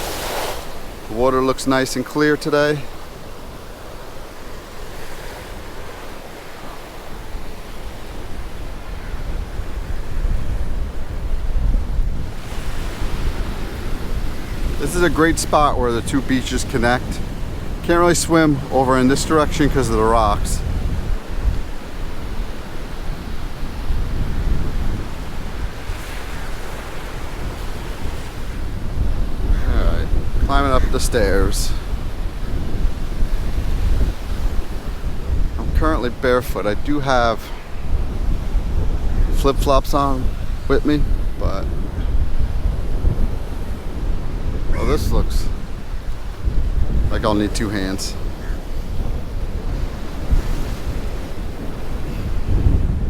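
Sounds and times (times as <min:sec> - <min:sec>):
ocean waves breaking on shore: 0:00.0 - 0:53.0
surf washing against rocks: 0:00.0 - 0:53.0
wind buffeting microphone: 0:00.0 - 0:53.0.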